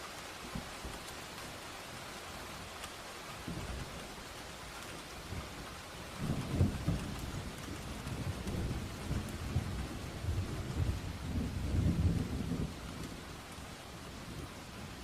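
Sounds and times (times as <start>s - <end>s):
steady rain: 0.0s - 15.0s
thunder rumbling: 6.2s - 13.2s.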